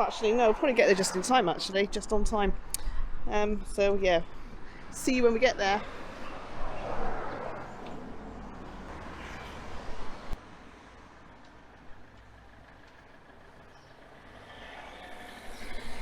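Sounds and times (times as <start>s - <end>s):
vehicle engine hum passing: 4.2s - 16.0s.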